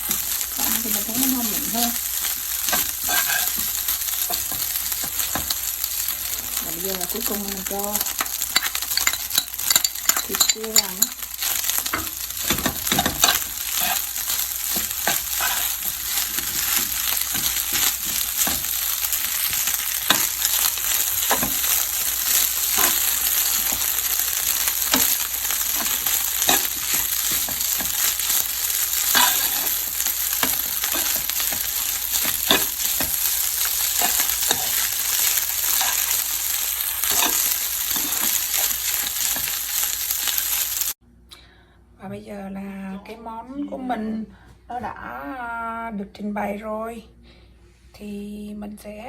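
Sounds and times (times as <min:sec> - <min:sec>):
rice sizzling in a hot pan: 0:00.0 - 0:41.0
spatula scraping and tapping pan: 0:02.2 - 0:05.7, 0:08.0 - 0:39.9.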